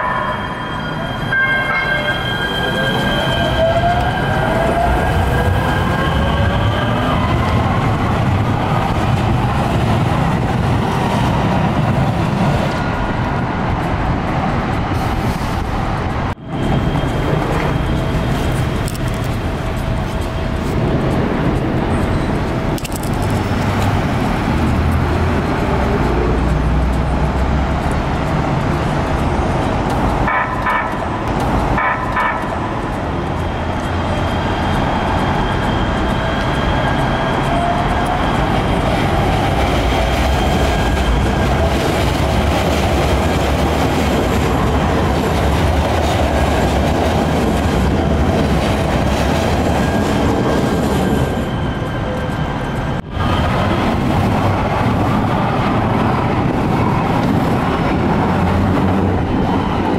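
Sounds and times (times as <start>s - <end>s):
train passing: 0.0s - 59.9s
train horn toots: 30.3s - 31.1s, 31.8s - 32.7s.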